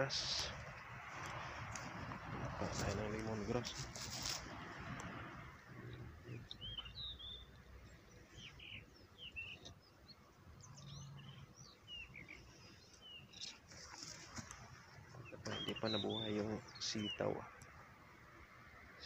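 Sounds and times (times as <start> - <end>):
small birds chirping: 0.0 - 19.0
low rumble: 0.2 - 6.6.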